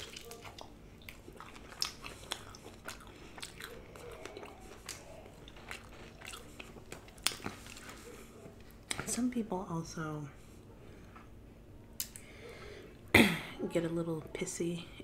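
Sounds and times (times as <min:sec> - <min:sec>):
biting into chicken wing: 0:00.0 - 0:08.2
chewing with mouth clicks: 0:00.0 - 0:09.1.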